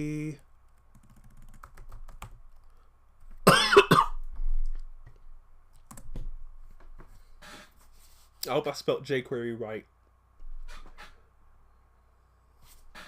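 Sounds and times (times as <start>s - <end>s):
keyboard typing: 0.7s - 3.4s, 5.8s - 6.3s
person coughing: 3.5s - 4.2s.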